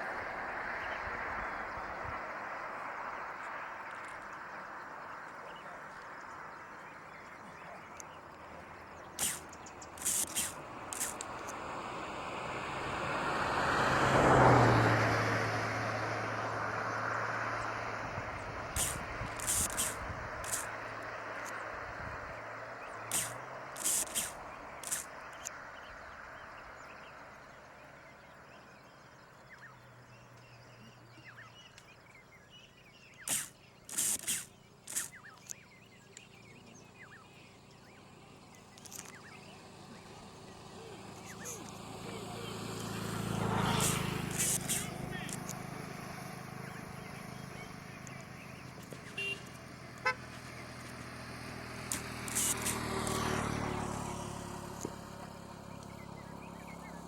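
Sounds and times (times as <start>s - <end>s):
motor vehicle passing: 0.0s - 31.6s, 33.2s - 57.0s
low steady engine hum: 0.0s - 57.0s
small birds chirping: 0.6s - 11.9s, 14.4s - 57.0s
loud hissing bursts: 9.2s - 11.5s, 18.7s - 20.8s, 23.1s - 25.1s, 33.3s - 35.3s, 41.3s - 41.7s, 43.5s - 46.0s, 51.8s - 53.3s.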